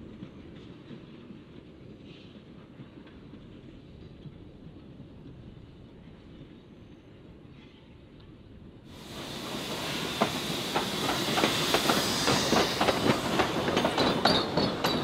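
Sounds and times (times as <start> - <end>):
steam train passing: 8.9 - 15.0
wheels clicking over rail joints: 10.1 - 15.0.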